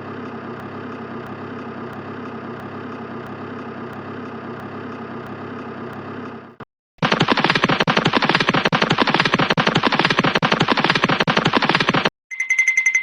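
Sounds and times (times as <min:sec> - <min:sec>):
motor running steadily: 0:00.0 - 0:12.1
faint regular ticking: 0:00.1 - 0:06.4.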